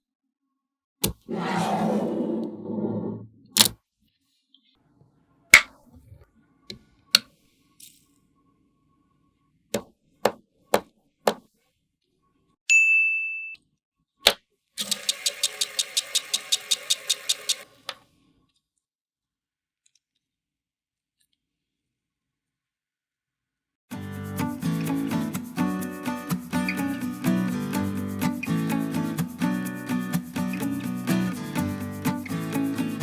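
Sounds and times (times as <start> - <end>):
short bright ding: 12.7 - 13.6.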